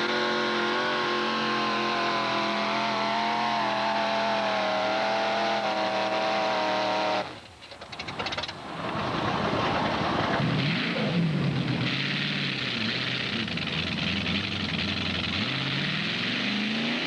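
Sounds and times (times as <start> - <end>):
tractor engine running flat out: 7.8 - 16.4.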